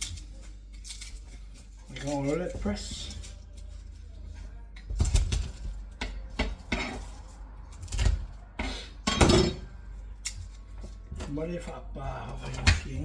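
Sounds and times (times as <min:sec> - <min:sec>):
dishes and utensils clattering: 0:00.0 - 0:13.0.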